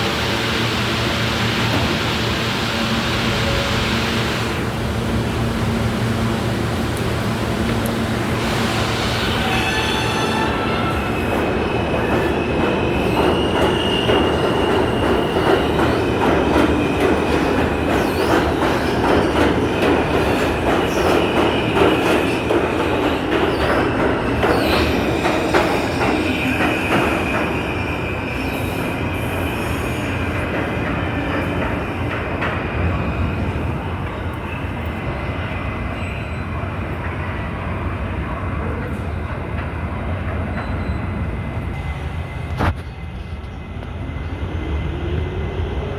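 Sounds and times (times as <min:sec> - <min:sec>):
subway train rumbling: 0:00.0 - 0:45.9
train wheels squealing: 0:08.4 - 0:22.4, 0:23.0 - 0:32.0, 0:34.1 - 0:37.3, 0:40.3 - 0:43.6
rail joints clicking: 0:10.8 - 0:27.6.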